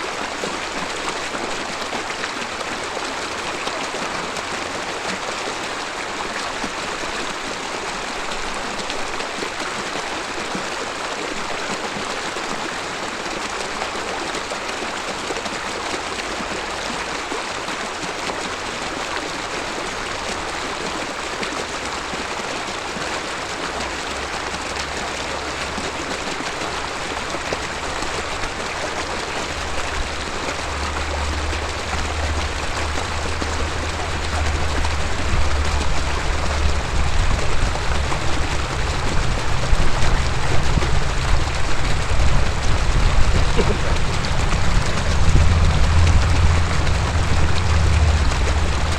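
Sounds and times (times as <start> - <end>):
river babbling: 0.0 - 48.9
low rumble: 27.7 - 48.9.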